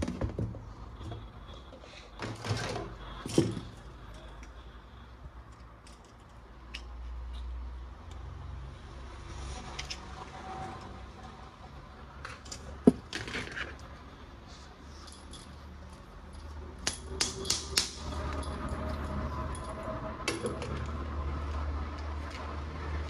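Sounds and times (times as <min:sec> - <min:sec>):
clicks of hard toy parts: 0:16.8 - 0:18.1.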